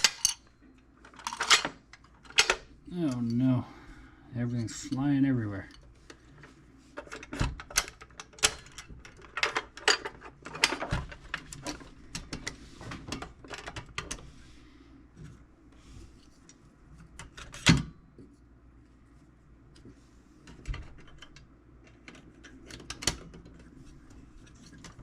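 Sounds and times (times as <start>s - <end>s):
metal parts clicking and rattling: 0.0s - 3.4s, 7.0s - 12.5s.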